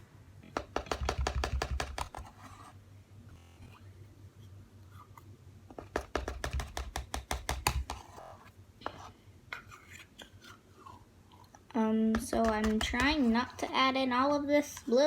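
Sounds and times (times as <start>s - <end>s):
slime stirred with stick clicking: 12.2s - 13.4s.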